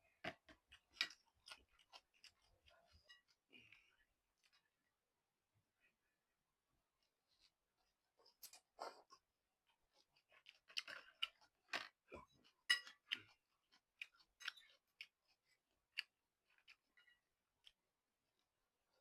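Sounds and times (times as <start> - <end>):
person chewing and slurping noodles: 0.1 - 4.6, 8.2 - 17.9.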